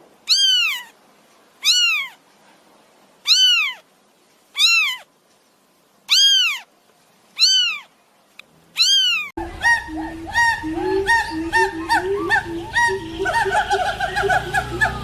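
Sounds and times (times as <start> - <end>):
steady background hiss: 0.0 - 15.0
cat meowing: 0.3 - 1.0, 1.6 - 2.2, 3.2 - 3.8, 4.5 - 5.1, 6.1 - 6.7, 7.4 - 7.9, 8.8 - 9.3
flock of birds calling: 8.8 - 15.0.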